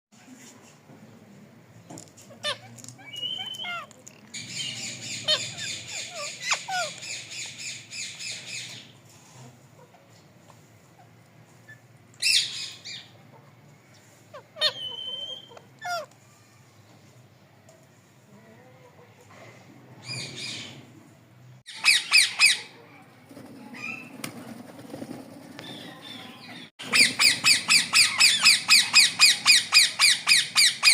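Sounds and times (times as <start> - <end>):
parrot raspy rhythmic call: 2.4 - 8.2, 21.7 - 22.8, 26.8 - 30.9.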